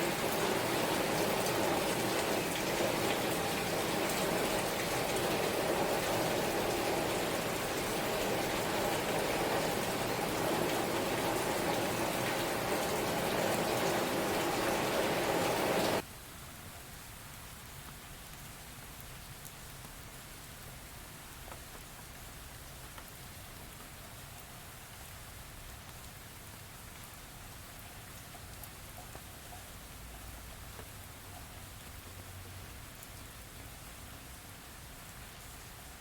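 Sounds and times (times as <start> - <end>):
rain hissing: 0.0 - 16.0.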